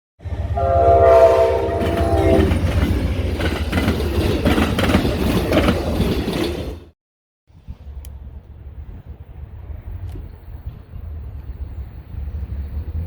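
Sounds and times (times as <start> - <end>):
passing train rumble: 0.2 - 13.0
train horn chord: 0.5 - 2.6
wheels clattering over rail joints: 1.7 - 7.0.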